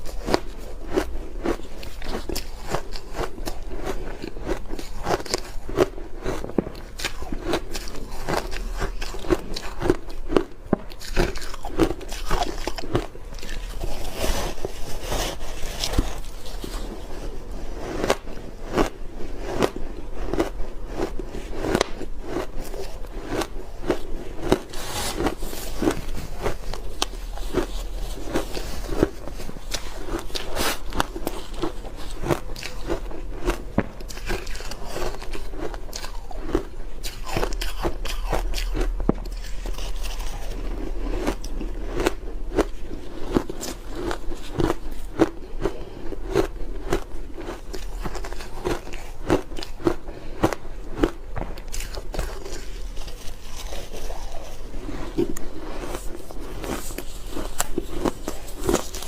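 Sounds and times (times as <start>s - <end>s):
ice being chewed: 0.0s - 59.0s.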